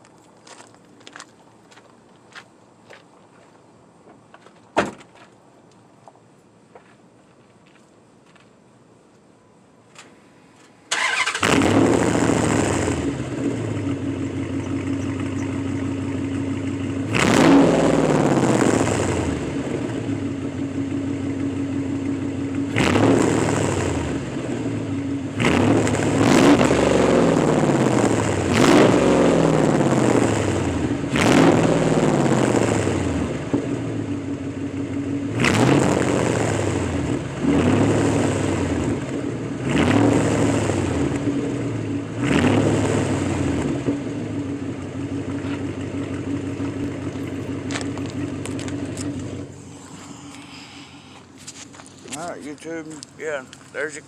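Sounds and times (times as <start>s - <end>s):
engine starting and idling: 10.8s - 16.4s
engine revving: 10.9s - 20.4s, 22.4s - 33.9s, 34.8s - 44.6s.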